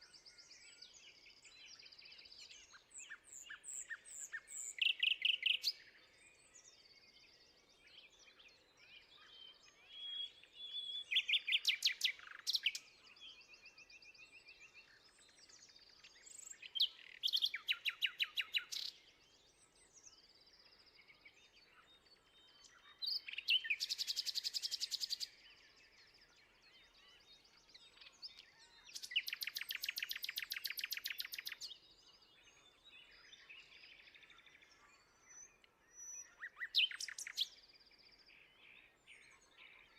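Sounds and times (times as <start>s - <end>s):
birds chirping and whistling: 27.9s - 31.8s, 35.3s - 37.6s.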